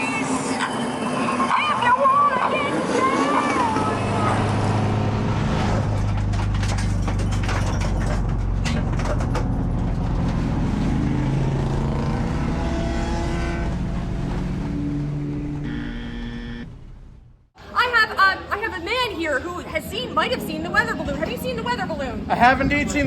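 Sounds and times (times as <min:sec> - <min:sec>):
race car engine revving: 0:02.2 - 0:17.5.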